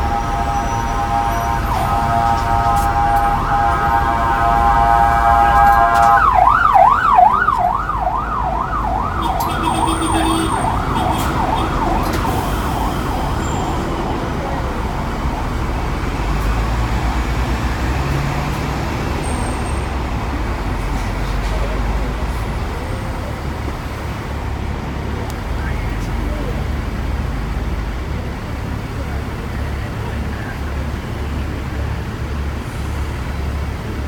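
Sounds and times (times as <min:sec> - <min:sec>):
emergency vehicle siren yelping: 0:00.0 - 0:17.9
low traffic rumble: 0:00.0 - 0:34.0.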